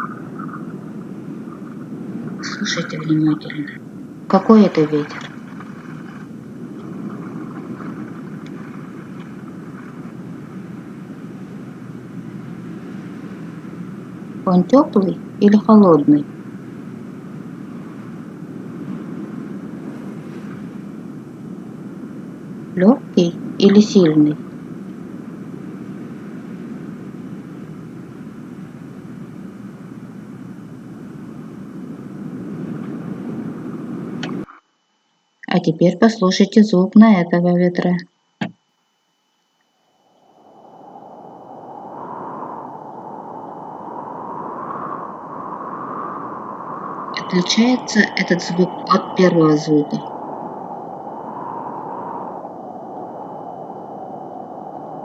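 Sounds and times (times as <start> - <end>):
soft wind blowing: 0.0 - 34.5, 39.2 - 55.0.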